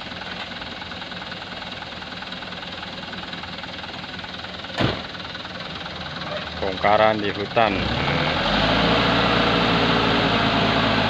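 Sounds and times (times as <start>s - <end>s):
truck diesel engine idling: 0.0s - 11.0s
sharp thump: 4.8s - 5.1s.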